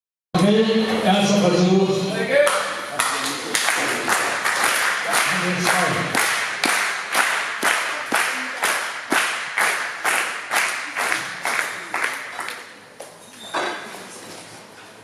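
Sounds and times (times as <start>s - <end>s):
crowd clapping in unison: 2.4s - 12.8s.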